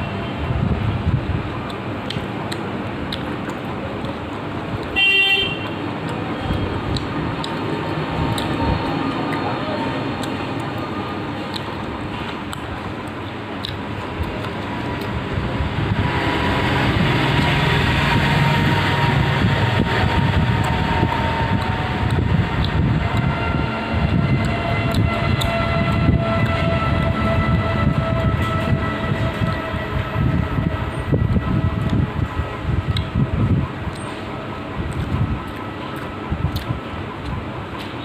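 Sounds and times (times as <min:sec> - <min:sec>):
train rumble: 0:00.0 - 0:05.0, 0:05.6 - 0:38.0
eating clicks: 0:01.6 - 0:05.0, 0:05.6 - 0:15.3, 0:19.8 - 0:23.3, 0:34.9 - 0:37.9.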